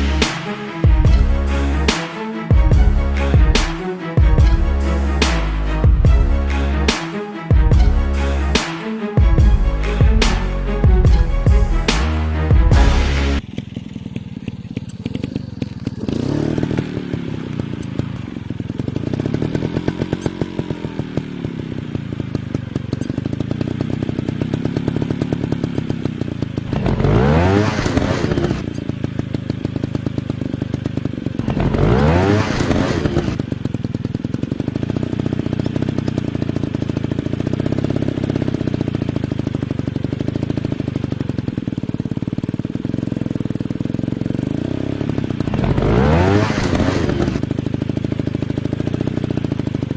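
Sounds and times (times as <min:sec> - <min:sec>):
dirt bike engines revving: 0:00.0 - 0:21.6, 0:26.6 - 0:28.8, 0:31.4 - 0:33.5, 0:44.8 - 0:47.5.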